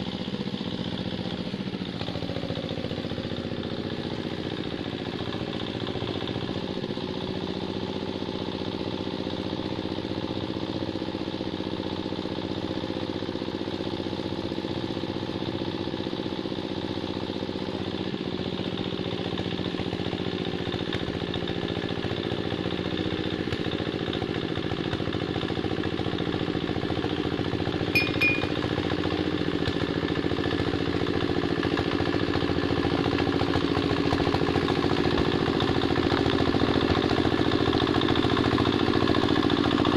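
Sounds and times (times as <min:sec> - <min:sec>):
hand tractor engine running: 0:19.0 - 0:39.9.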